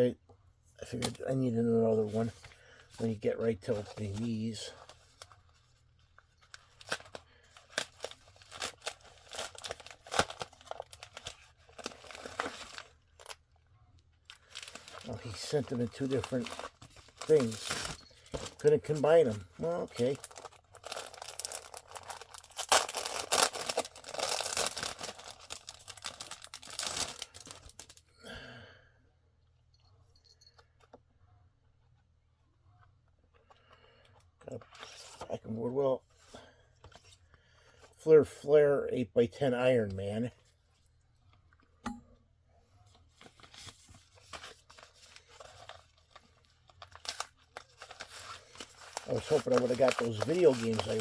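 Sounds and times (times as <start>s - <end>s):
paper packaging tearing and crinkling: 6.4s - 13.4s, 14.3s - 28.0s, 43.1s - 51.0s.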